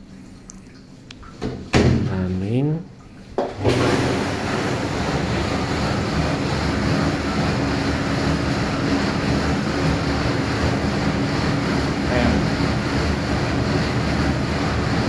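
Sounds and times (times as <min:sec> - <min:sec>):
low motor hum: 0:02.1 - 0:15.0
dishwasher water spraying: 0:03.4 - 0:15.0.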